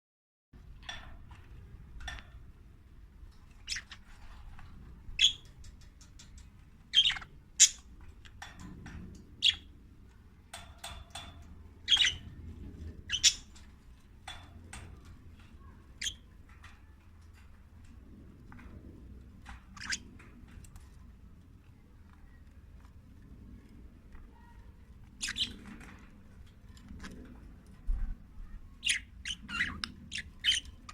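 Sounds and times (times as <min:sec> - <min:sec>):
budgerigars chirping and squawking: 0:03.6 - 0:04.2, 0:06.9 - 0:07.9, 0:11.9 - 0:12.3, 0:13.0 - 0:13.6, 0:19.6 - 0:20.0, 0:25.2 - 0:25.7, 0:28.8 - 0:30.9.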